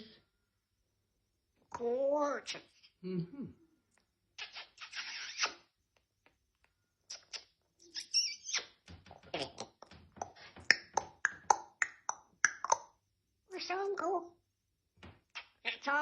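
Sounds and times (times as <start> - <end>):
parrot hissing: 4.4 - 5.7.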